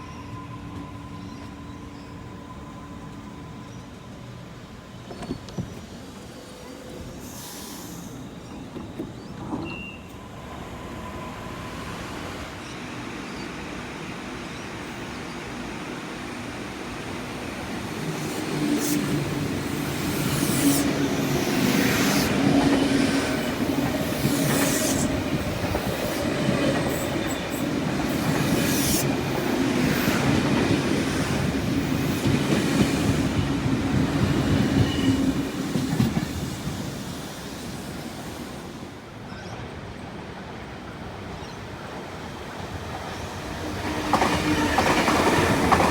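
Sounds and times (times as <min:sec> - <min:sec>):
train running past: 0:00.0 - 0:45.9
train wheels clicking on track: 0:17.8 - 0:38.8, 0:42.6 - 0:45.9.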